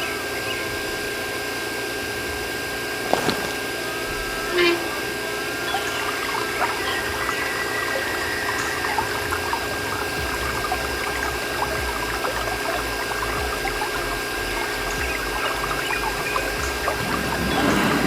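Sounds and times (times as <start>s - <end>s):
pump motor humming: 0.0s - 18.0s
water pouring and trickling: 5.7s - 18.0s.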